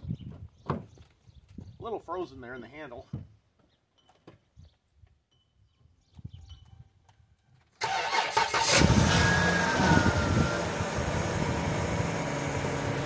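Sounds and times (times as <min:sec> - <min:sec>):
car engine idling: 0:07.8 - 0:13.0.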